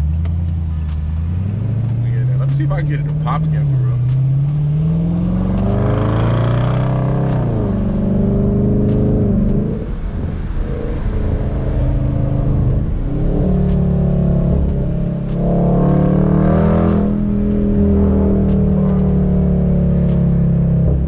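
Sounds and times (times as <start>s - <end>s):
car engine revving: 0.0s - 21.0s
exhaust popping on overrun: 0.0s - 21.0s.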